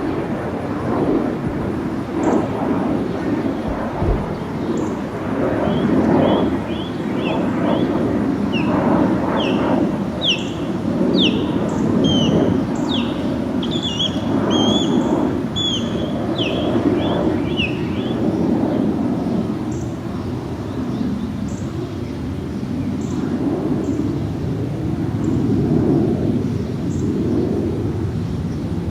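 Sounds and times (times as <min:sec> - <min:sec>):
jet engines rumbling: 0:00.0 - 0:28.9
small bird chirping: 0:08.5 - 0:18.2.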